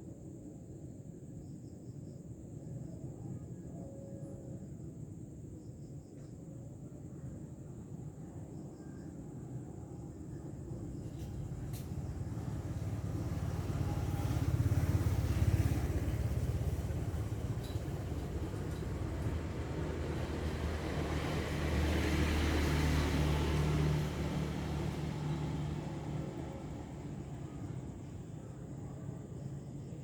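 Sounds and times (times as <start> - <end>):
vehicle engines passing: 11.0 - 28.0.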